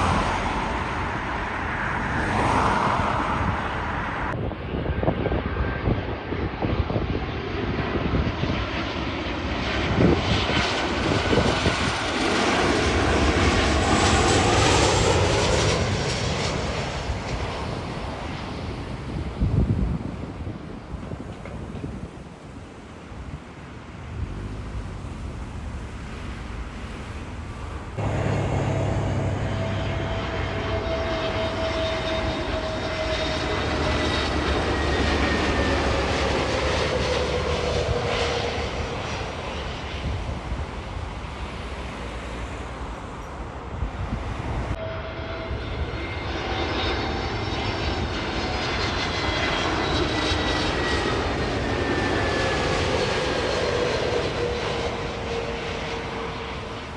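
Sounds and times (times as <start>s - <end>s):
jet airliner engines passing: 0.0s - 56.9s.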